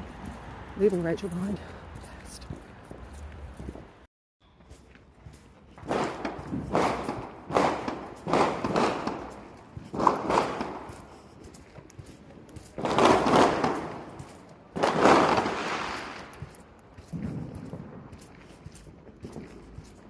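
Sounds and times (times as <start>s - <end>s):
fireworks bangs with rumbling echo: 5.8s - 11.0s, 12.8s - 16.3s.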